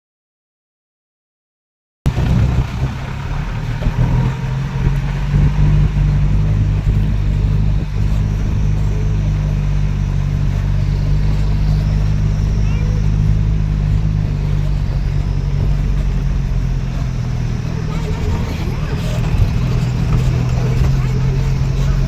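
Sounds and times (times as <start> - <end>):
vehicle engine running: 2.1 - 22.0.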